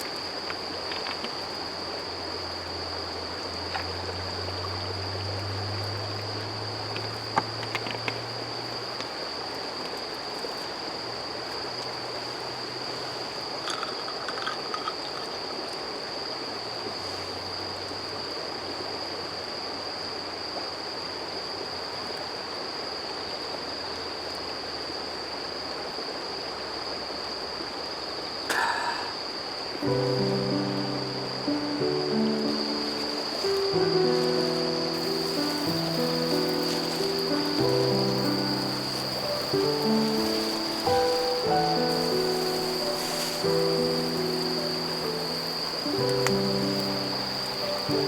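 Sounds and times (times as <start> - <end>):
insect trilling: 28.4 - 48.0
stream rushing: 29.6 - 48.0.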